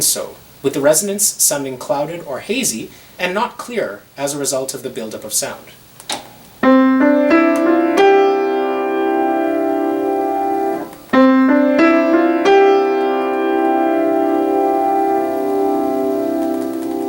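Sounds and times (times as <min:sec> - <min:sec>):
piano notes ringing: 0:06.6 - 0:17.0.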